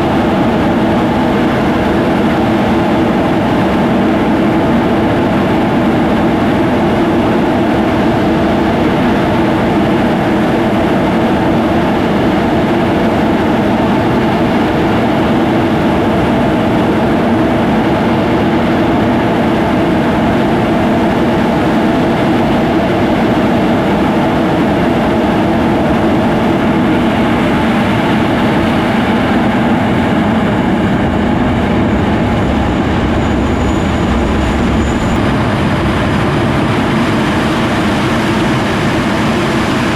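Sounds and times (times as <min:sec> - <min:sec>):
jet engine roar: 0:00.0 - 0:39.9.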